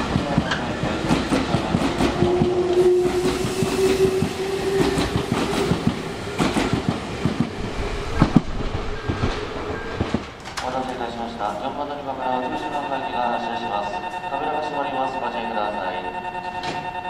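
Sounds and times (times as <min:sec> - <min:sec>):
train wheels clacking over rail joints: 0:00.0 - 0:02.6, 0:03.2 - 0:07.6
train motor whine: 0:01.8 - 0:07.1.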